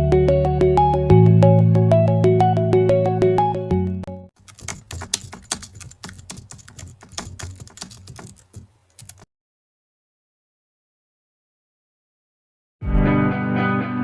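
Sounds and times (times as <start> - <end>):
background music: 0.0 - 4.2, 12.8 - 14.0
typing on a keyboard: 4.4 - 9.3.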